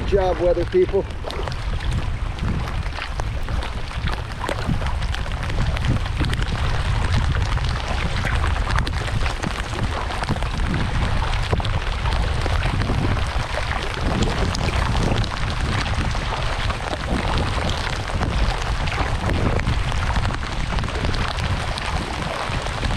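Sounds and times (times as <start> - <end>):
low rumble: 1.0 - 22.9
steady rain falling: 1.0 - 22.9.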